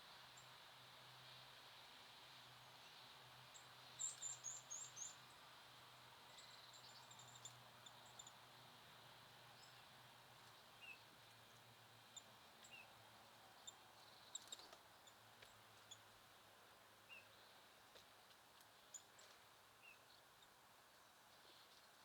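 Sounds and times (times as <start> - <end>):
faint outdoor hiss: 0.0 - 22.0
small birds chirping: 4.0 - 5.4.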